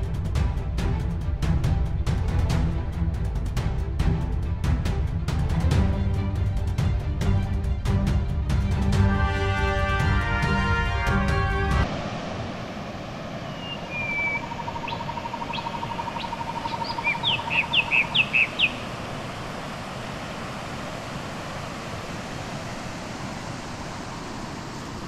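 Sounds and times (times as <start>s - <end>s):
steady rushing background: 0.0s - 25.0s
loud falling bird notes: 13.4s - 18.9s
birds chirping and trilling: 13.4s - 19.1s.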